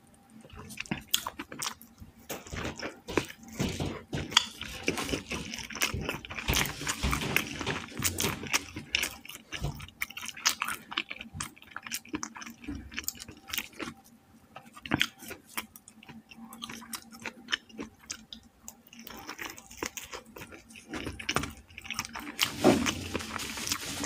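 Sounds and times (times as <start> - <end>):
chewing fried chicken: 0.0 - 24.0
crisp crackles: 22.0 - 24.0.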